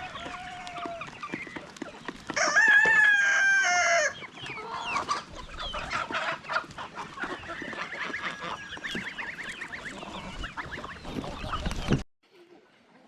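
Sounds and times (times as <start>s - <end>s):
poultry clucking and chirping: 0.0s - 12.0s.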